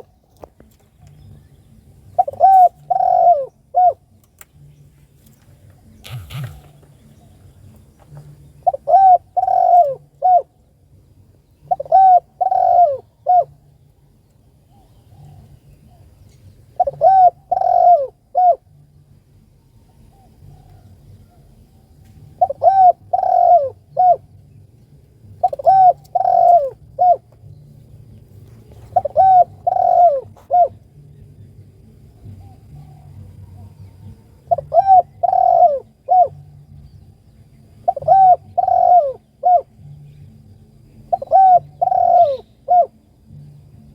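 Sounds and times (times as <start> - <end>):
dove cooing: 0.0 - 0.2, 2.0 - 4.2, 5.7 - 10.7, 11.6 - 13.9, 14.6 - 19.0, 19.7 - 24.5, 25.2 - 31.2, 32.2 - 36.8, 37.7 - 39.9, 41.0 - 43.1.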